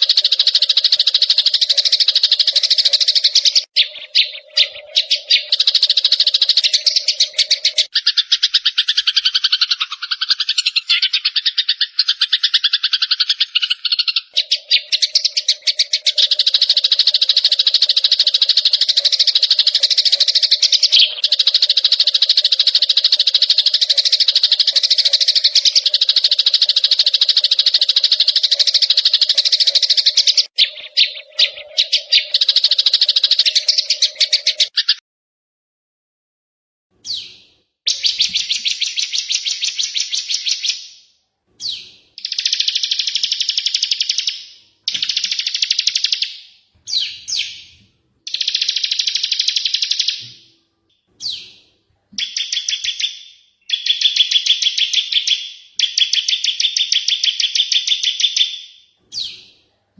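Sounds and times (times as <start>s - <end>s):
songbirds chattering in fast trills: 0.0s - 35.0s, 41.6s - 50.2s.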